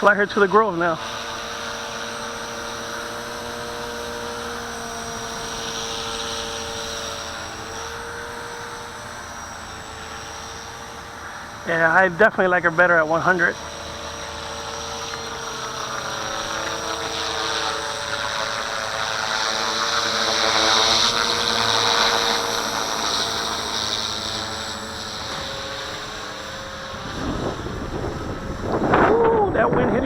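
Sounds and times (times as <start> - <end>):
rc helicopter motor whine: 0.0 - 30.0
rotor drone: 0.0 - 30.0.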